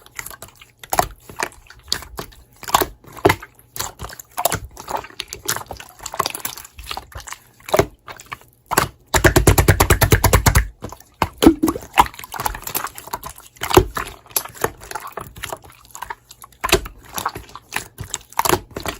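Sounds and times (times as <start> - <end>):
slime squishing wet clicks: 11.3 - 12.5.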